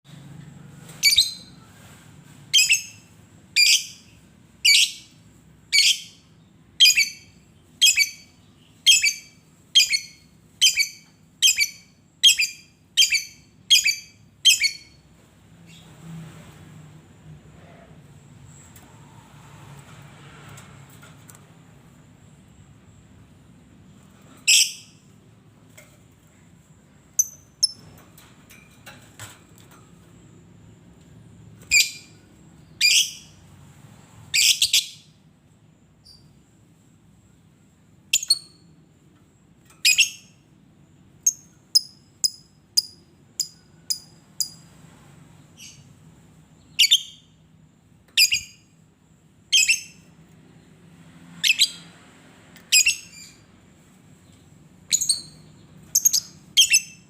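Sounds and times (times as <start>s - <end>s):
high thin bird chirps: 2.5s - 15.0s, 24.2s - 25.1s, 39.8s - 40.4s, 48.2s - 48.7s, 54.3s - 57.0s.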